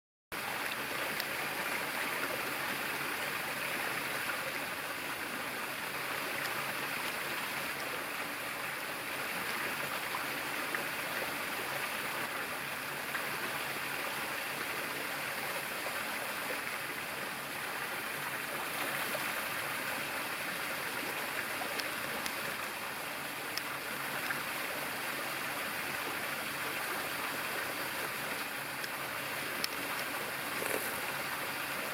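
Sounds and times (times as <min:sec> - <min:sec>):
running water: 0:00.3 - 0:31.9
faint ticks: 0:23.5 - 0:24.4, 0:28.3 - 0:31.1.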